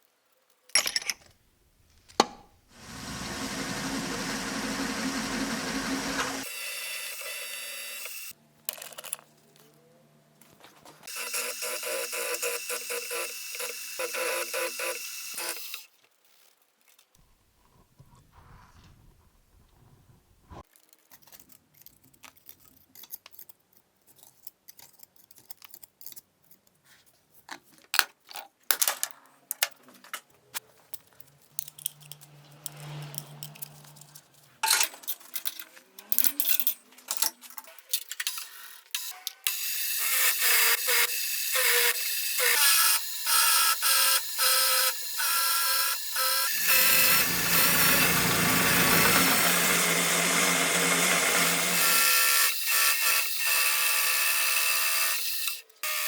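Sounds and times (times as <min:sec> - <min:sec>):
metal tools clicking and knocking: 0:00.7 - 0:01.4, 0:30.9 - 0:39.6
power tool whining: 0:02.2 - 0:08.4, 0:11.1 - 0:15.8, 0:39.0 - 0:56.0.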